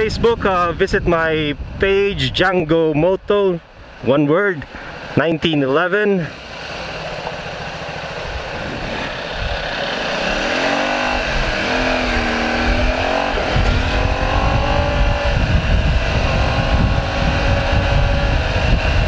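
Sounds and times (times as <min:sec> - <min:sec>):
wind rumble on microphone: 0:00.0 - 0:04.1, 0:08.2 - 0:19.0
motorcycle engine accelerating: 0:06.2 - 0:19.0.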